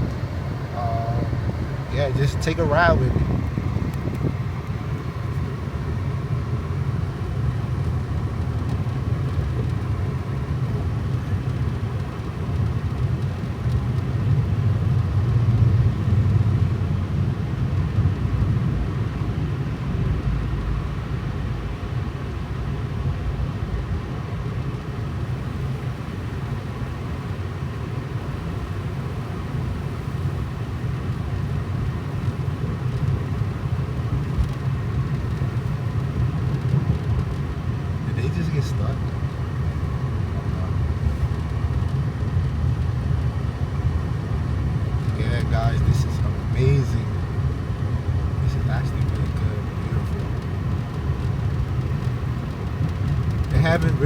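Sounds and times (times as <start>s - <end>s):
car engine and tyres rumbling: 0.0s - 54.0s.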